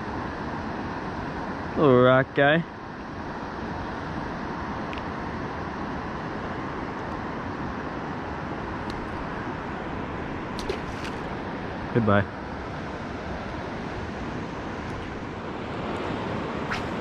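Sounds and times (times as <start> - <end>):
rushing water at spillway: 8.1 - 17.0.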